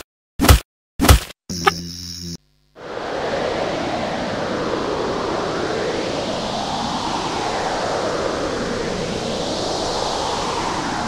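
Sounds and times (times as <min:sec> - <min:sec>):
rushing storm wind: 0:02.8 - 0:11.0.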